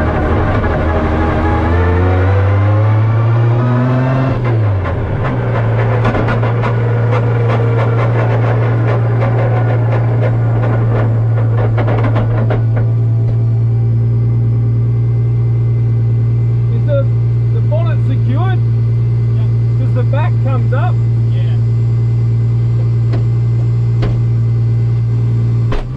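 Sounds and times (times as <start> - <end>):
car engine revving: 0.0 - 25.9
sharp clicks and rattles: 4.4 - 13.9.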